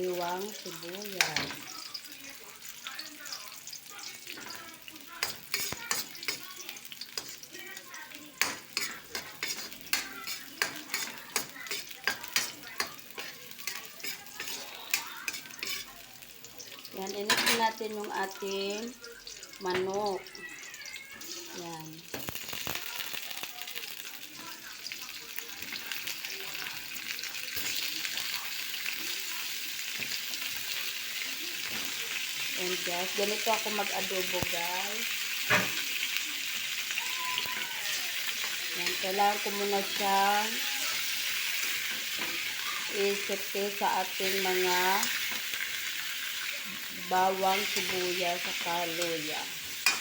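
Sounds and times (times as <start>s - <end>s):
food sizzling in hot oil: 0.0s - 50.0s
utensil clicking in pan: 5.2s - 7.4s
spatula scraping pan: 5.2s - 7.5s, 8.4s - 16.0s, 37.8s - 50.0s.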